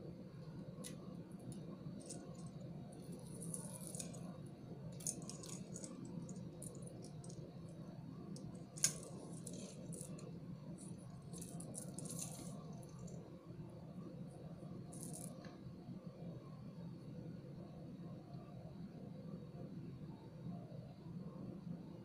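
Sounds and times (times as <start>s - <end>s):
steady low hum: 0.0s - 22.0s
plastic beads and pins clicking: 5.0s - 7.4s, 10.8s - 13.1s.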